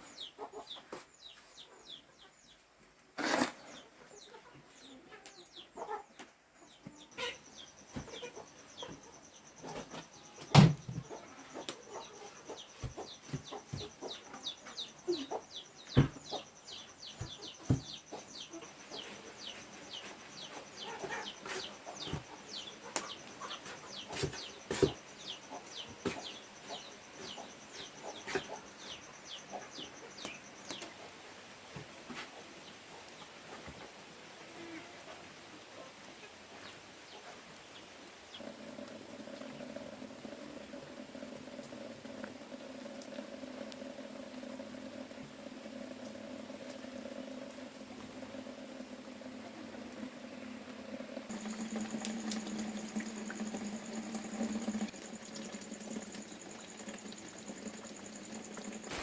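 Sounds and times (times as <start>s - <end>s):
chickens chirping: 0.1s - 2.6s, 3.2s - 31.3s.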